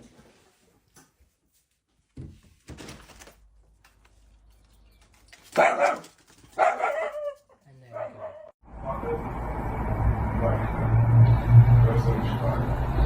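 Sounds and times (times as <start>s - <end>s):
dog barking: 5.5s - 8.6s.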